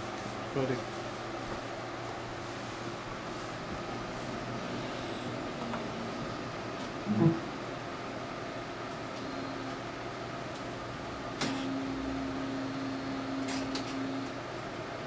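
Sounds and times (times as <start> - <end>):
printer mechanical hum: 0.0 - 15.0
printer motor running: 8.8 - 15.0
printer clicks: 11.4 - 11.7, 13.4 - 14.4.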